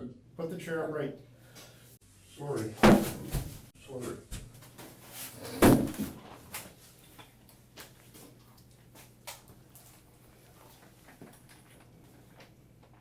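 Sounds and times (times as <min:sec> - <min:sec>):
chair thudding on floor: 0:02.8 - 0:03.6, 0:05.5 - 0:06.3.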